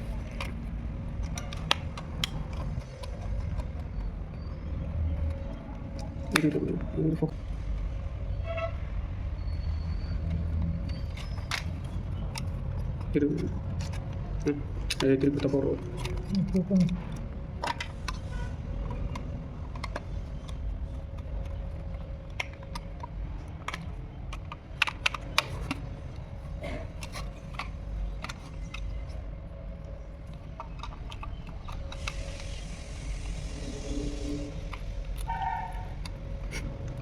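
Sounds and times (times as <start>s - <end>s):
small hard objects clicking: 10.3s - 32.6s
hiss: 32.0s - 34.6s.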